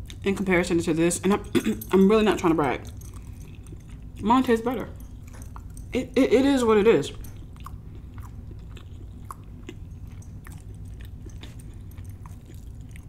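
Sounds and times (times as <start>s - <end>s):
wet chewing mouth clicks: 7.2s - 13.0s.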